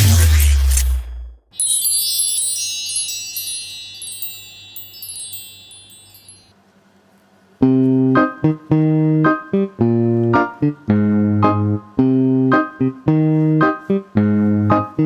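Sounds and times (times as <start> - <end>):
high chime tones ringing: 1.5 - 6.6.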